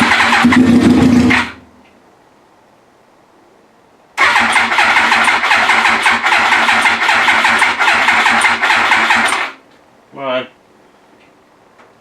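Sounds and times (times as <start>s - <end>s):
motorcycle starter motor cranking: 0.0s - 1.6s, 4.2s - 9.6s.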